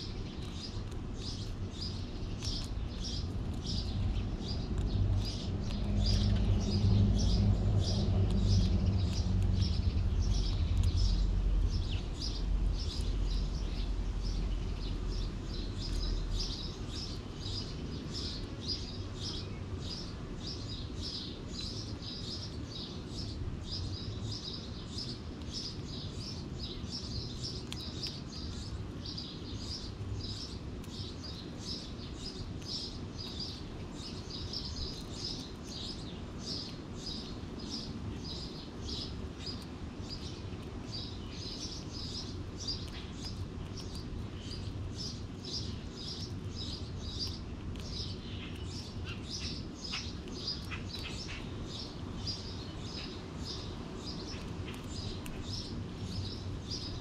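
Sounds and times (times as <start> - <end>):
low background rumble: 0.0 - 18.4
small birds chirping: 0.0 - 57.0.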